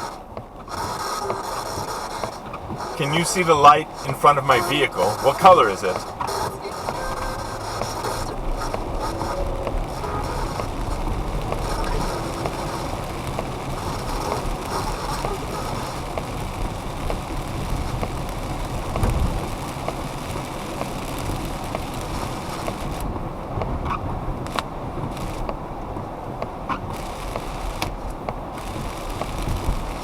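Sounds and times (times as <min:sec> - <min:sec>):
road rumble and hiss: 0:00.0 - 0:30.0
radio sweep clicks and fragments: 0:02.3 - 0:14.4.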